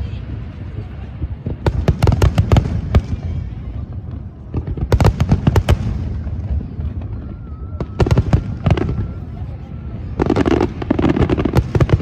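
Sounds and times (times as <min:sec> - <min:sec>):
fireworks cracks and bangs: 0:00.2 - 0:12.0.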